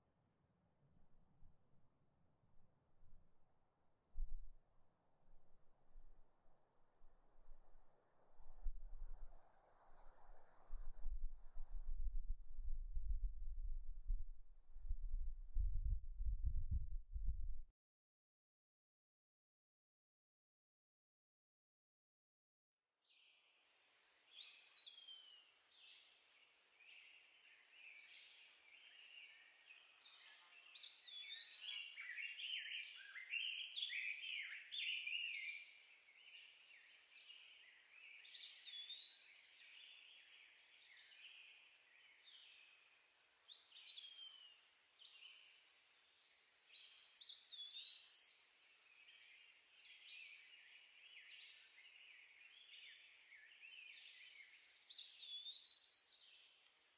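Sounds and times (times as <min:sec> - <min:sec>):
songbirds singing: 0:24.0 - 0:56.7.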